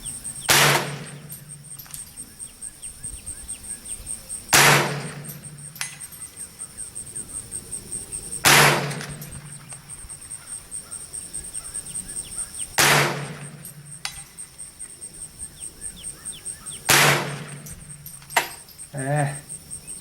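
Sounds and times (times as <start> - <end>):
insect trilling: 0.0 - 0.5, 9.2 - 12.8, 13.6 - 20.0
rifle shots: 0.4 - 2.0, 4.5 - 6.1, 8.4 - 9.8, 12.8 - 14.3, 16.8 - 18.6.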